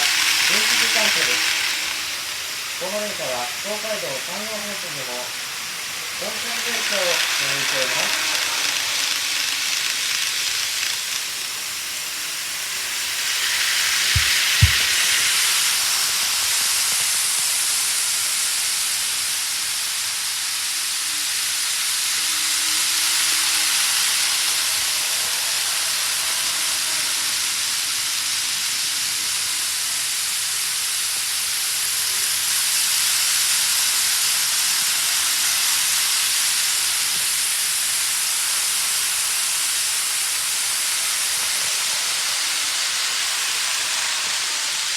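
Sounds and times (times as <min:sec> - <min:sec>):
model trains running on track: 0:00.0 - 0:44.9.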